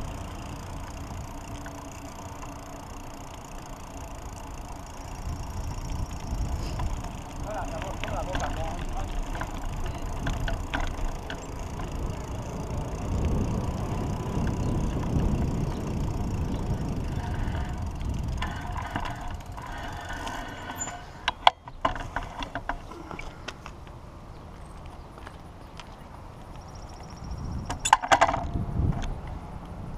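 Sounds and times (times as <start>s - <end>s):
wind rumble on microphone: 4.9s - 20.7s, 26.8s - 29.9s
sharp clicks and knocks: 7.7s - 11.9s, 27.7s - 29.2s.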